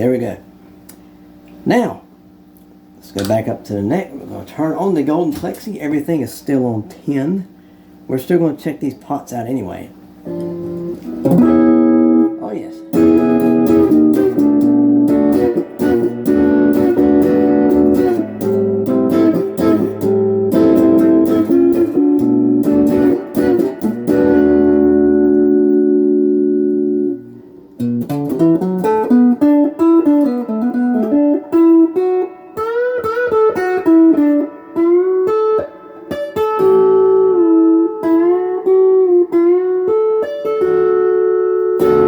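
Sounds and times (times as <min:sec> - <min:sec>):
overdriven electric guitar chords: 0:10.1 - 0:42.0
electric guitar lead with bends: 0:10.2 - 0:42.0.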